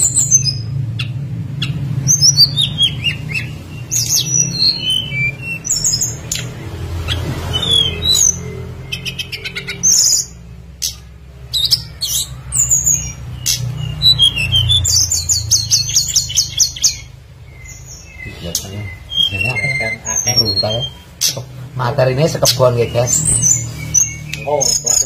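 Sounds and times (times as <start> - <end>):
songbird chirping and trilling: 0.0 - 25.0.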